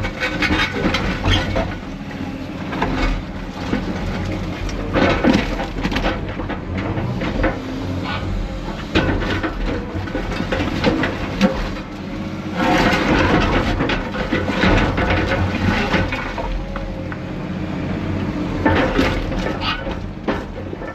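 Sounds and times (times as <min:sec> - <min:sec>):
concrete rubble scraping and clattering: 0:00.0 - 0:17.3, 0:18.5 - 0:20.9
diesel machinery engine drone: 0:00.0 - 0:20.9.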